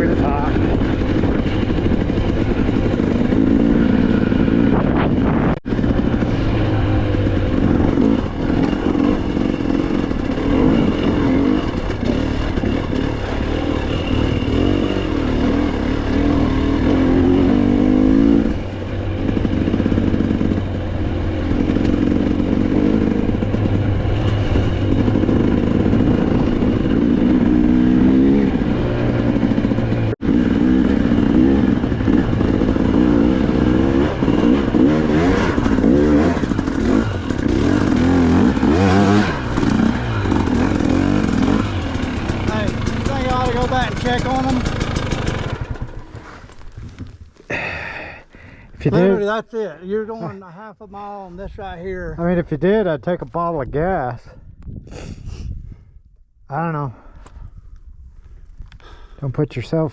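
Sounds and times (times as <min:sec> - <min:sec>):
dirt bike engine revving: 0:00.0 - 0:46.7.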